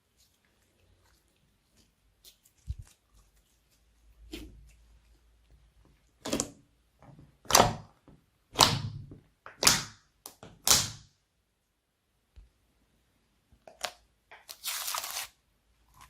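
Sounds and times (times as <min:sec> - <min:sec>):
slime squelching and popping: 0:07.4 - 0:11.1.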